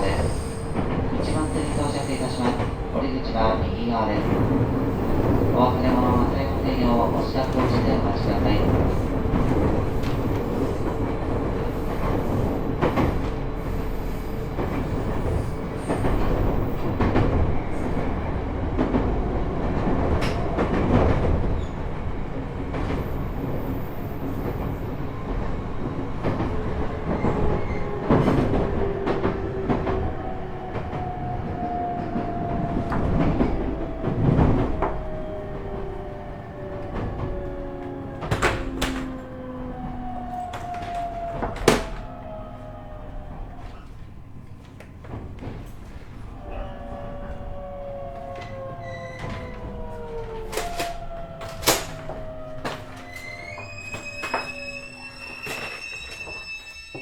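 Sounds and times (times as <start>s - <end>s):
train gear and motor whine: 26.2s - 57.0s
wheels clicking over rail joints: 28.1s - 42.4s, 47.2s - 56.3s.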